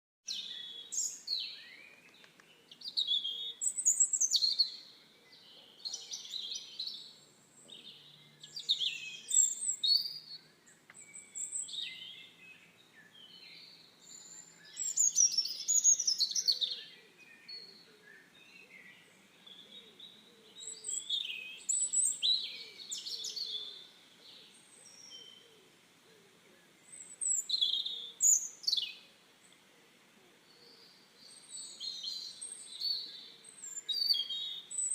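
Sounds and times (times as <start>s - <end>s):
songbirds singing: 0.2s - 34.9s.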